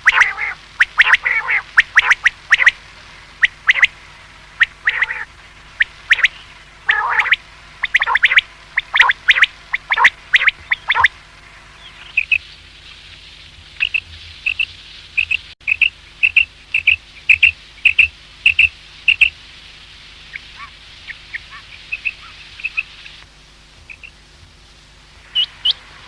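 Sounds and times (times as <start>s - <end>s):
quail calling: 0.0s - 2.8s, 3.4s - 4.0s, 4.6s - 11.2s, 20.3s - 23.2s.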